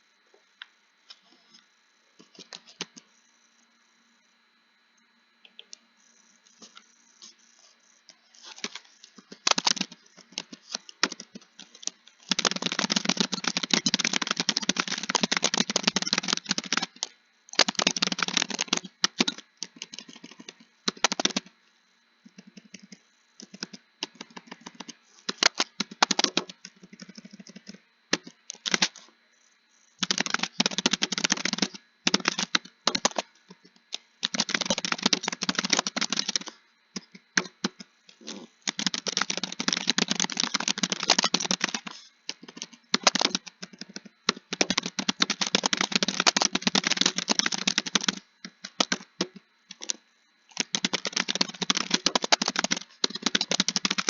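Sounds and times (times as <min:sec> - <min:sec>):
keyboard typing: 0:08.4 - 0:21.5, 0:22.4 - 0:29.0, 0:30.0 - 0:33.3, 0:33.9 - 0:54.0.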